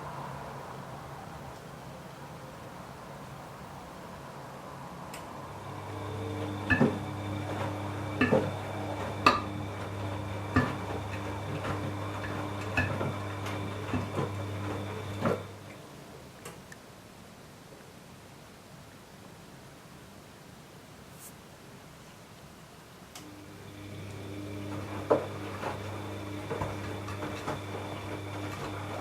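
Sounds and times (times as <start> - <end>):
washing machine motor humming: 5.4 - 15.8, 23.2 - 29.0.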